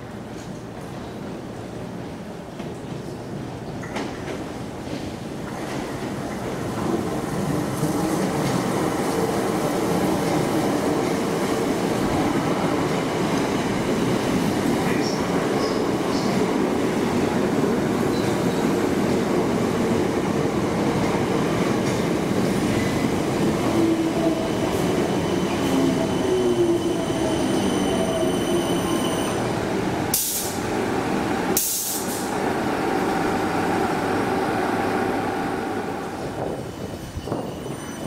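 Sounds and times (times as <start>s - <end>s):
train wheels rumbling on rail: 0.0s - 38.0s
short sharp hisses: 31.6s - 32.3s.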